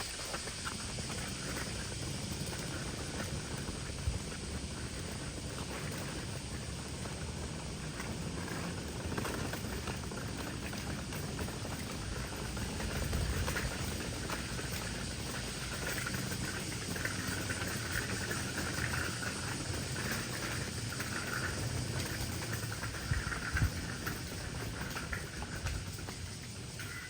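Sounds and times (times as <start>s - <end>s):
wind rumble: 0.0s - 27.0s
insects chirring: 11.6s - 27.0s.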